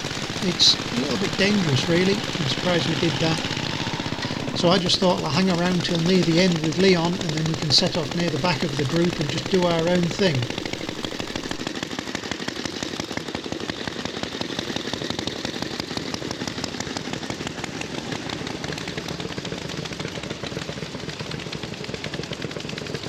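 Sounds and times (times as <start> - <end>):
motorcycle engines popping: 0.0 - 11.6.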